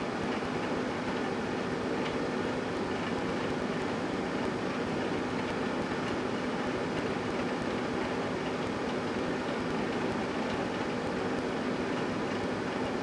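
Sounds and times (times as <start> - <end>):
fan rushing: 0.0 - 2.2
microwave oven humming: 0.0 - 13.0.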